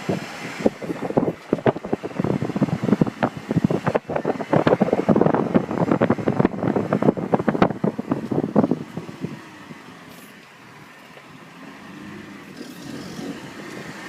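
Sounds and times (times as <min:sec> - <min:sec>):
microphone crackling and buffeting: 0:00.0 - 0:09.4.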